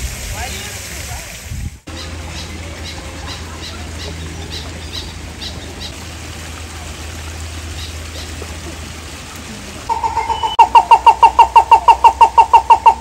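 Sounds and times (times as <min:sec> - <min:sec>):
bird calling short high notes: 0:09.9 - 0:12.2.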